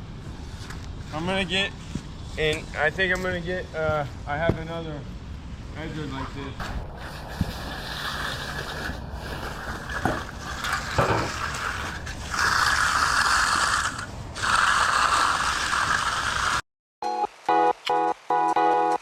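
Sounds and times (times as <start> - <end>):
steel tool scraping wet concrete: 6.9 - 16.6.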